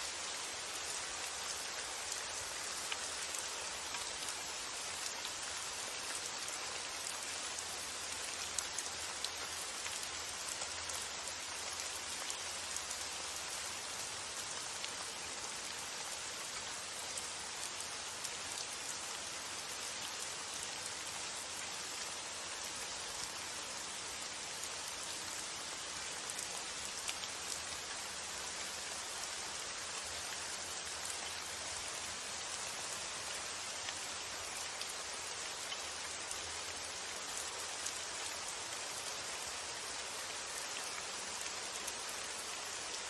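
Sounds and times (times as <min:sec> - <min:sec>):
steady rain hiss: 0:00.0 - 0:43.0.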